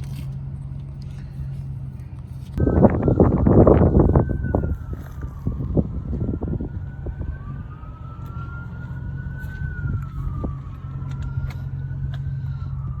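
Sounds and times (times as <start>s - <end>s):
steady low hum: 0.0s - 13.0s
emergency siren wailing: 2.6s - 13.0s.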